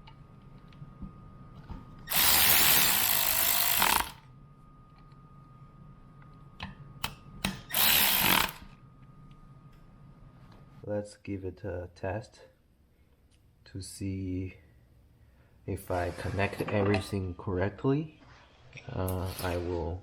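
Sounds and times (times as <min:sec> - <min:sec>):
power drill running: 0:02.1 - 0:04.2, 0:07.7 - 0:08.7.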